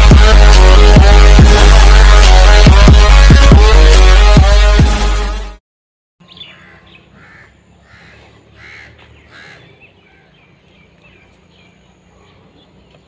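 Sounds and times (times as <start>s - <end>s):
bird repeated calls: 6.2s - 13.0s
small birds chirping: 6.2s - 13.0s.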